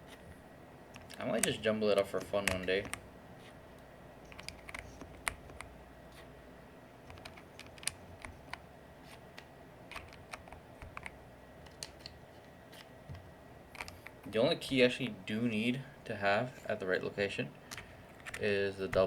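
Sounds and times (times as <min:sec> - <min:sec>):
keycaps clicking onto keyboard: 0:01.0 - 0:03.0, 0:04.3 - 0:05.7, 0:07.1 - 0:08.6, 0:09.9 - 0:12.2, 0:17.6 - 0:19.0.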